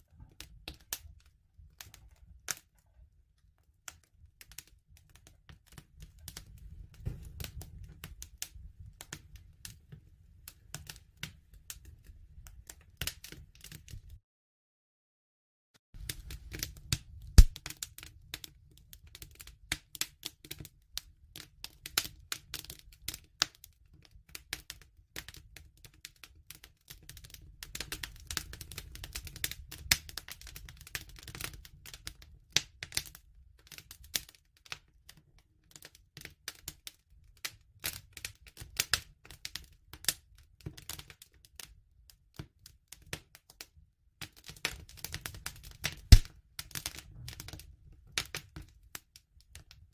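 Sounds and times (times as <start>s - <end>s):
bonfire crackling: 16.0s - 23.4s, 44.5s - 48.5s.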